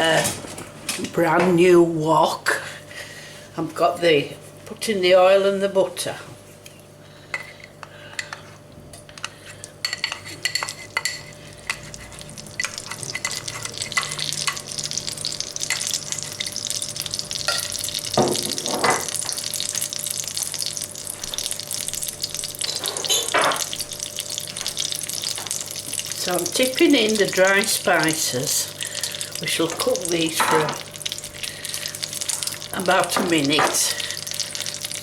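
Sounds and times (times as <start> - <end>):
butter and oil sizzling in a wok: 9.7 - 35.0.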